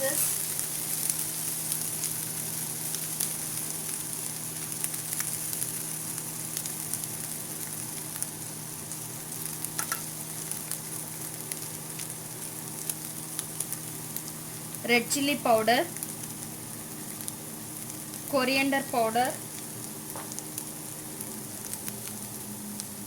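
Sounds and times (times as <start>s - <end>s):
onions sizzling in hot oil: 0.0s - 23.0s
oil popping and crackling: 0.4s - 14.8s, 19.3s - 23.0s.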